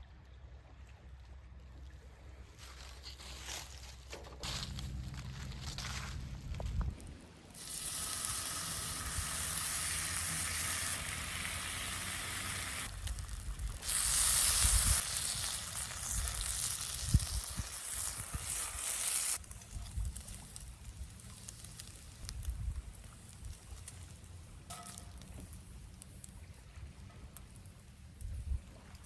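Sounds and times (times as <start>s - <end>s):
fire popping: 4.4s - 29.0s
food sizzling in a pan: 7.6s - 19.4s.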